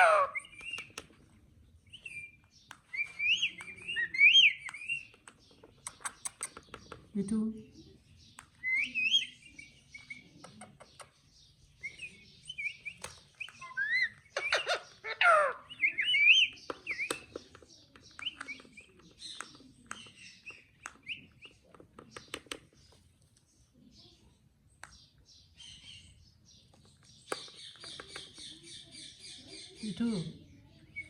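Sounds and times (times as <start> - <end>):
parrot chirping and whistling: 15.8 - 17.1.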